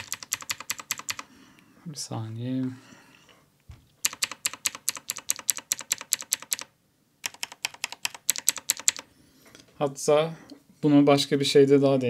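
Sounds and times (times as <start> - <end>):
mechanical keyboard clicking: 0.0 - 1.2, 4.0 - 9.0.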